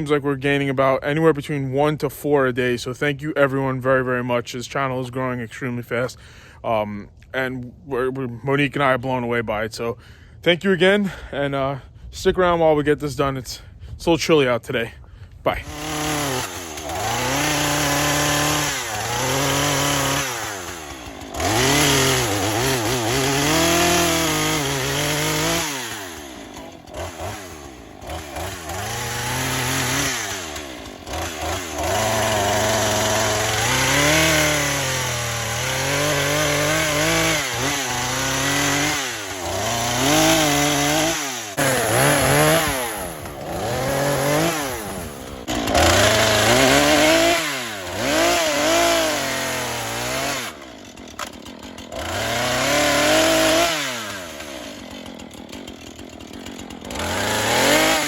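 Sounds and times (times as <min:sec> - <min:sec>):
chainsaw cutting logs: 0:15.1 - 0:58.0.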